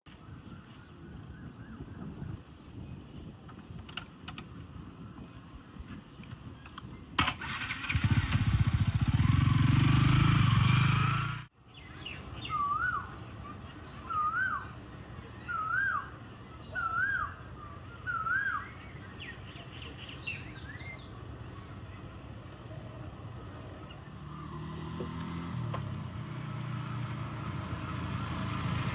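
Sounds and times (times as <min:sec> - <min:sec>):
motorcycle engine running: 0:07.2 - 0:11.5, 0:20.5 - 0:28.9
faint bird chirps: 0:11.6 - 0:24.9.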